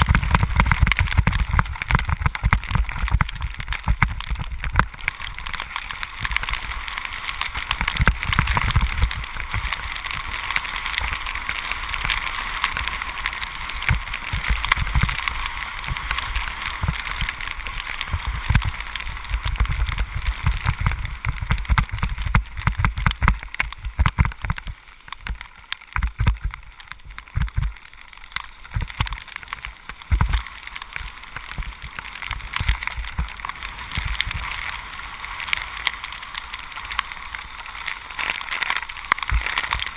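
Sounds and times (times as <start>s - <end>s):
wind buffeting microphone: 0.0s - 4.9s.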